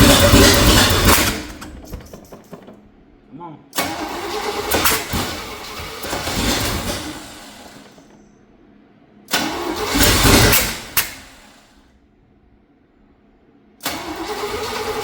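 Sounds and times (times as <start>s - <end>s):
engine cranking and sputtering: 0.0s - 3.1s, 3.8s - 8.4s, 9.3s - 11.6s, 13.8s - 15.0s.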